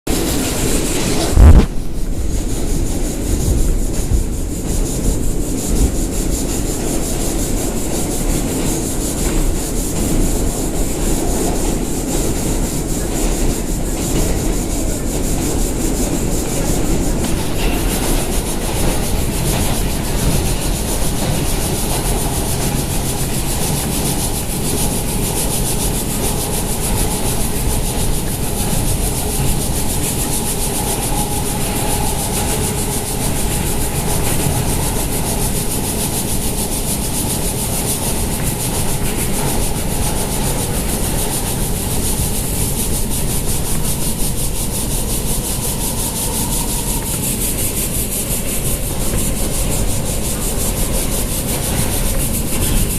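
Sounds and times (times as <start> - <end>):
subway train wheels rumbling on track: 0.0 - 52.9.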